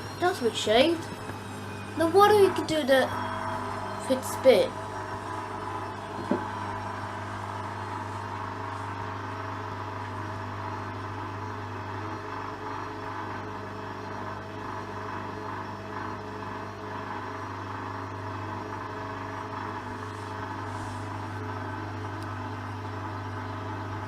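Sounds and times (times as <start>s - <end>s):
washing machine motor hum: 0.0s - 24.0s.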